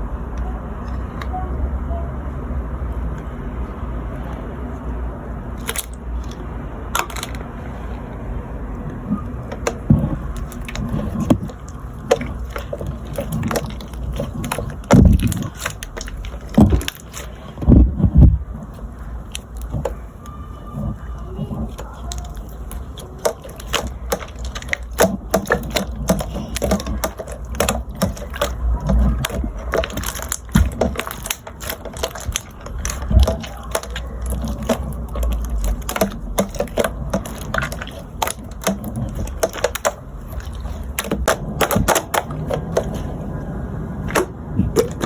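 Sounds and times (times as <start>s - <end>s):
rapid clicks and taps: 21.6s - 43.1s.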